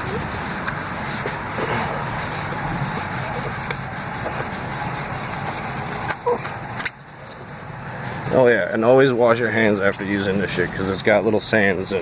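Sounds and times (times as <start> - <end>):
cloth scrubbing plastic lens: 0.0 - 8.5.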